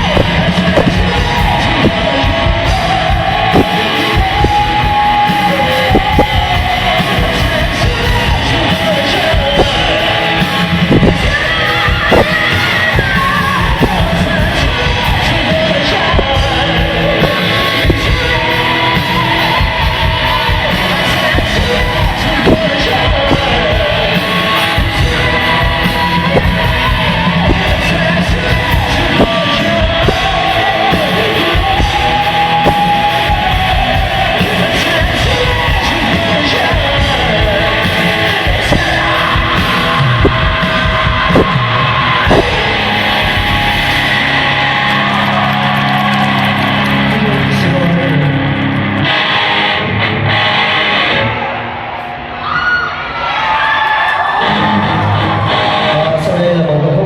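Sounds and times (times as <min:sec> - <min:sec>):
drum hits: 0:00.0 - 0:45.1
singer yelling vocals: 0:00.0 - 0:49.1, 0:51.1 - 0:57.0
heavy rock band playing: 0:00.0 - 0:57.0.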